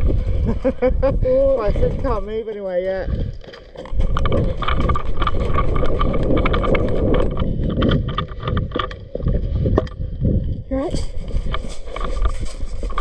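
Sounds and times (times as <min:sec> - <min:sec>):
wind buffeting microphone: 0:00.0 - 0:13.0
sharp clicks and knocks: 0:01.8 - 0:10.0.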